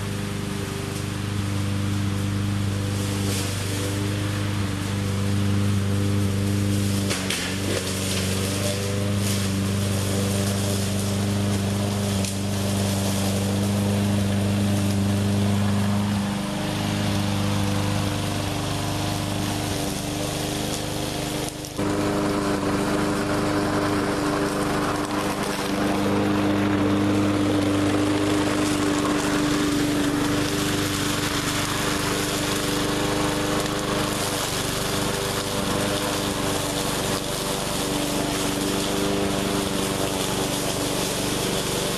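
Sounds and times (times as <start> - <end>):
push mower engine running: 0.0 - 41.9.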